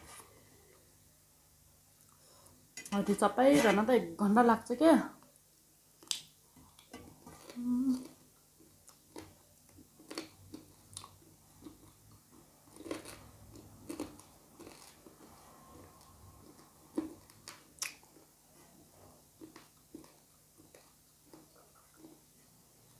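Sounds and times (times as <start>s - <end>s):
low voice hum: 7.5s - 8.1s
wet chewing mouth sounds: 16.0s - 18.3s.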